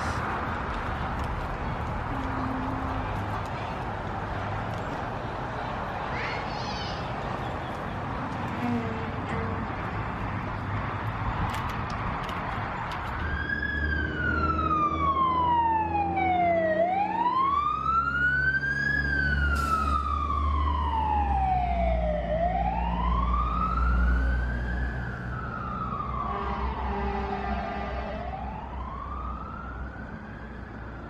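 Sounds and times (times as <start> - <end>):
siren wailing: 13.2 - 31.0.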